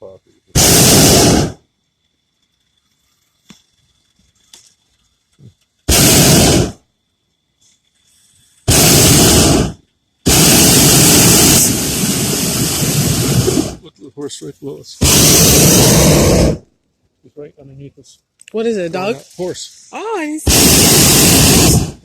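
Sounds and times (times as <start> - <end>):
propane burner blasts: 0.0 - 1.7, 5.4 - 6.9, 8.1 - 13.9, 14.6 - 16.7, 18.7 - 22.0.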